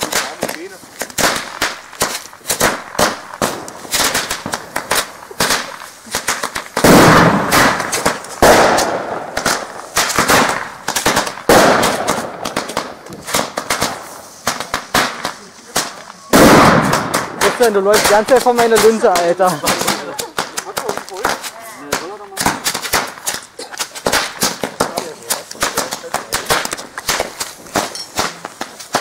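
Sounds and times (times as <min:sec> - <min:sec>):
fireworks crackling: 0:00.0 - 0:29.0
loud firework bangs: 0:00.0 - 0:29.0.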